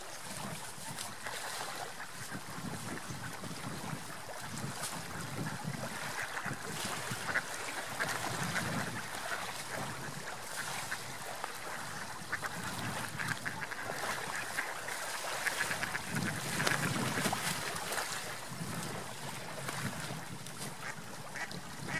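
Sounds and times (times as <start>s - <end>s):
rushing water: 0.0s - 21.9s
wind: 0.0s - 21.9s
mallard ducks quacking: 5.4s - 17.2s, 20.8s - 21.9s.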